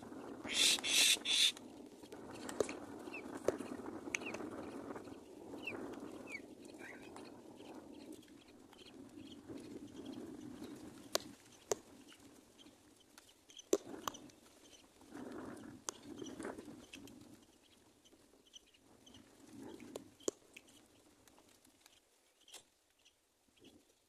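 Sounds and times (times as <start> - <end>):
bird low clucking calls: 0.4 - 1.6.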